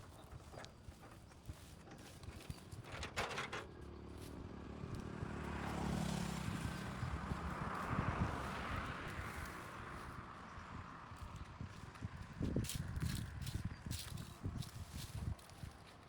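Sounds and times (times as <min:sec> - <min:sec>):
motor vehicle passing by: 0:03.7 - 0:16.0.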